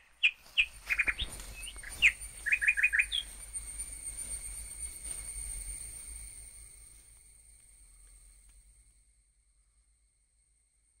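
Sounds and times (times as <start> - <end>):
small bird chirping: 0.0 - 3.4
high-pitched ringing tone: 0.4 - 11.0.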